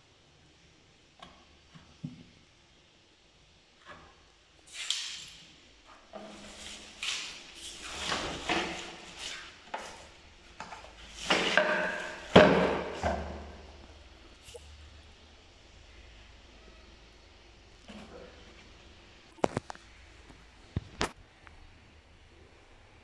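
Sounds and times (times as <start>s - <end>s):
vacuum parts knocking and rattling: 7.7s - 13.6s.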